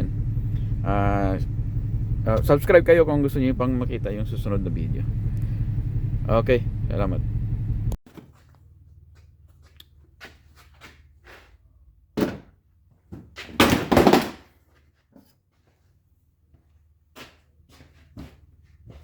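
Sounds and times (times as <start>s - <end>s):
faint low hum: 0.0s - 10.6s
knocks and clunks of tools: 12.2s - 12.5s.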